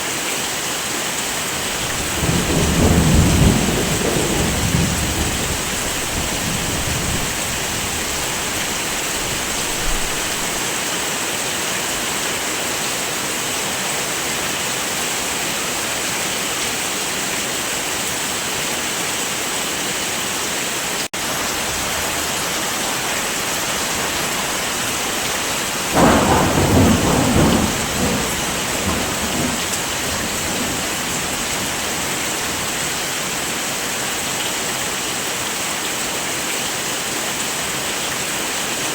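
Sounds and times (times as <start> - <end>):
heavy rain: 0.0 - 38.9
thunder rumbling: 1.6 - 10.6, 21.6 - 33.5.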